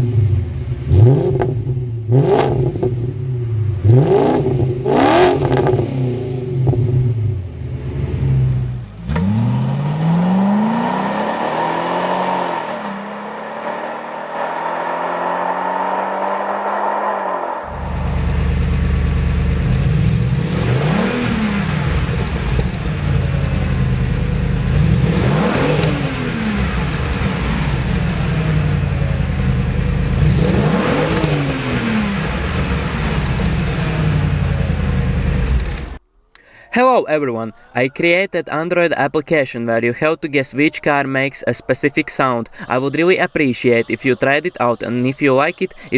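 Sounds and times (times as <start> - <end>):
car exhaust revving: 0.0 - 36.0.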